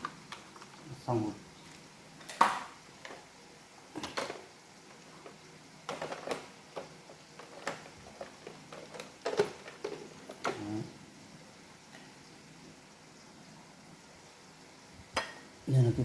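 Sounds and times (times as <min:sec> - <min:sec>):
plastic parts clicking and knocking: 0:04.0 - 0:10.7.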